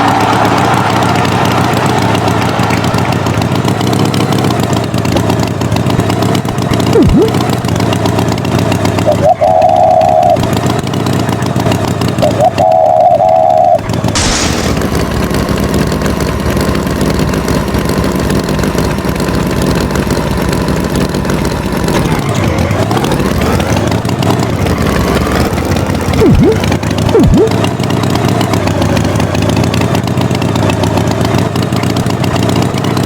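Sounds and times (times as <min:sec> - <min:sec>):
cartoon tractor engine: 0:00.0 - 0:33.0
short wavering tone: 0:06.8 - 0:07.5, 0:26.2 - 0:27.6
quick falling sweeps: 0:26.2 - 0:27.6.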